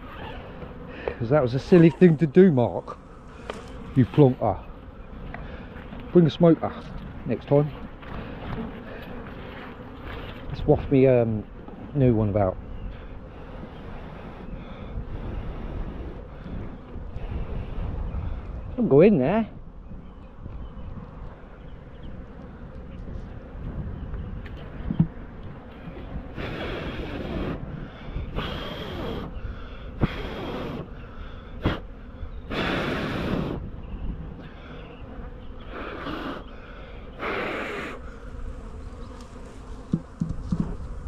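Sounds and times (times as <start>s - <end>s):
wind rumble on microphone: 6.9s - 35.7s, 38.1s - 41.0s.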